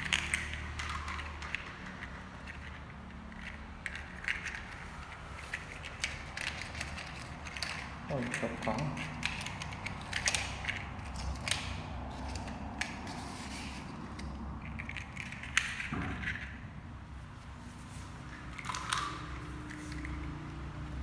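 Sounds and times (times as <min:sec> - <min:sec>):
plastic mechanism clicks and rattles: 0:00.0 - 0:13.2.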